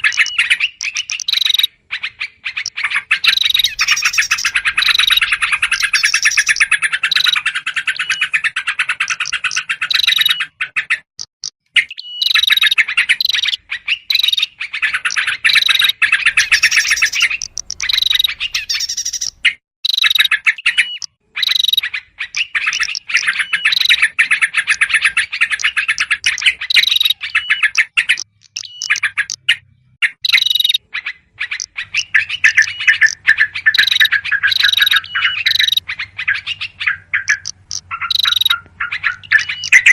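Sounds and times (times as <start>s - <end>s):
small birds calling: 0.0s - 39.9s
bulbuls chattering: 2.6s - 10.4s, 14.8s - 30.8s, 31.4s - 39.9s.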